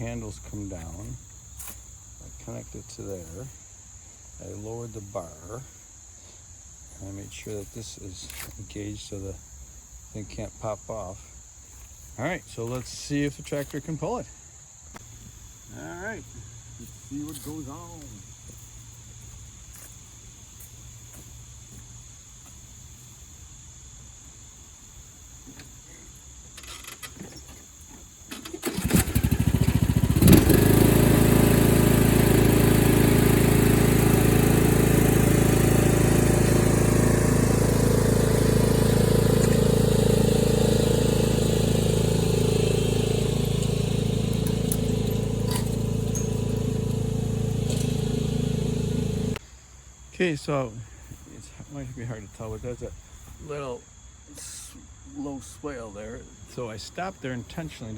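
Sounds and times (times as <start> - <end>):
lawn tractor engine running: 28.3 - 49.4.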